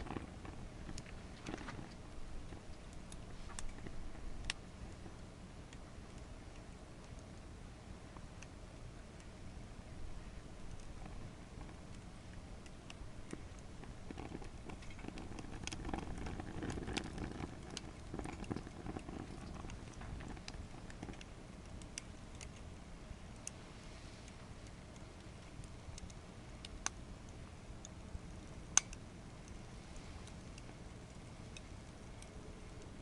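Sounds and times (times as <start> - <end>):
wood fire crackling: 0.0 - 33.0
rush of flames: 9.3 - 27.0
sharp pops of fire: 10.6 - 22.7.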